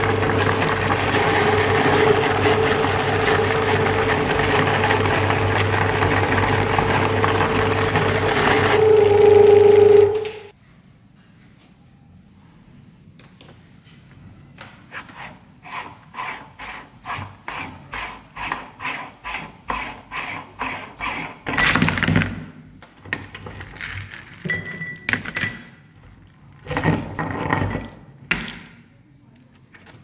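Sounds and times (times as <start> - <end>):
meat grinder crunching wafers: 0.0 - 9.7, 23.2 - 24.5, 26.0 - 27.6.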